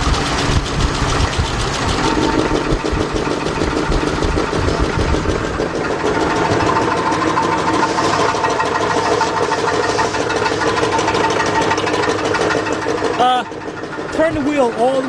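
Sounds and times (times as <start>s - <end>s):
engine running: 0.0s - 15.0s
fast knocking from engine: 0.0s - 15.0s.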